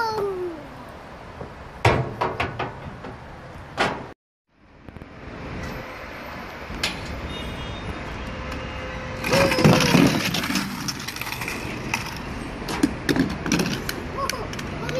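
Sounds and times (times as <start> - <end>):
toy trucks whirring hum: 9.2 - 12.4.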